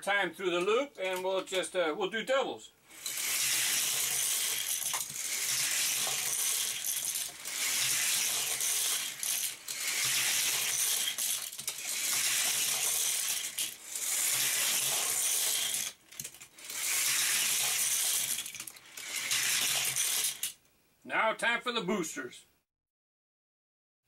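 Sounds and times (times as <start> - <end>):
toy cars rolling on plastic track: 2.9 - 20.6.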